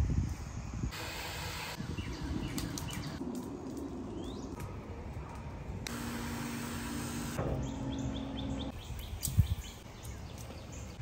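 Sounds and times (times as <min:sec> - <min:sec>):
bird chirping: 0:07.4 - 0:11.0.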